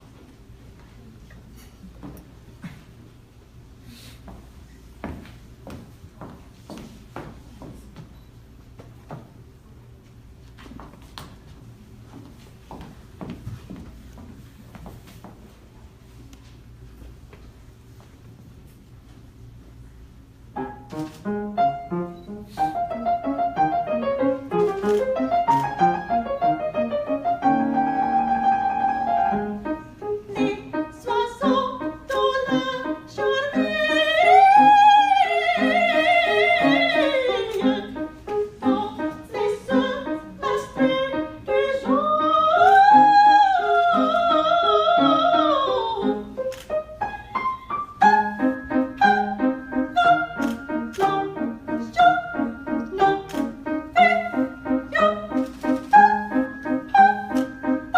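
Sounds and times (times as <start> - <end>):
piano accompaniment: 20.5 - 57.9
classical singing voice: 22.8 - 47.2, 47.9 - 57.9.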